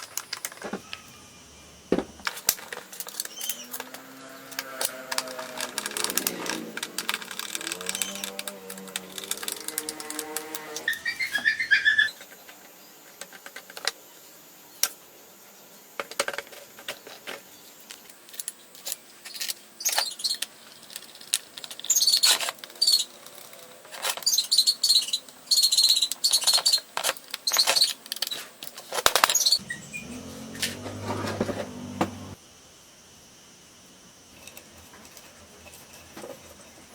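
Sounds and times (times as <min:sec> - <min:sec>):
metal parts clinking and scraping: 0:02.2 - 0:11.6, 0:17.2 - 0:29.6.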